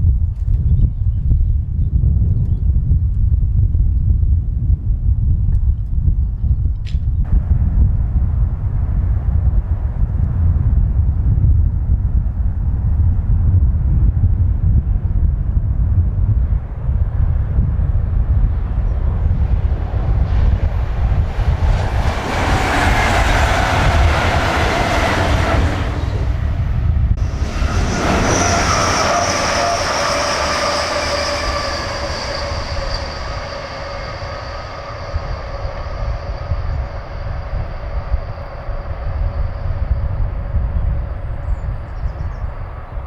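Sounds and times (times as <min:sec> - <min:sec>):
low rumble: 0:00.0 - 0:43.0
train engine whine passing: 0:07.3 - 0:10.5, 0:16.6 - 0:43.0.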